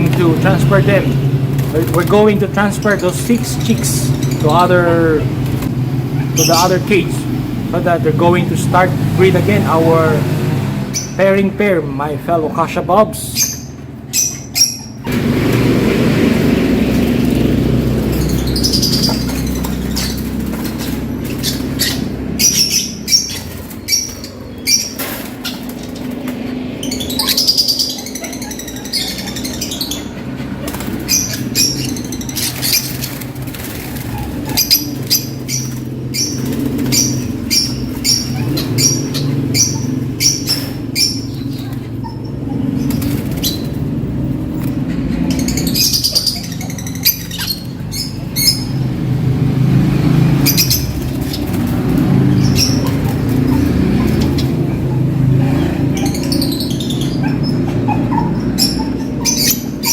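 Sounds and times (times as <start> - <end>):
birds flapping wings: 0.0 - 7.8, 15.0 - 42.0, 42.6 - 46.2, 46.8 - 56.4.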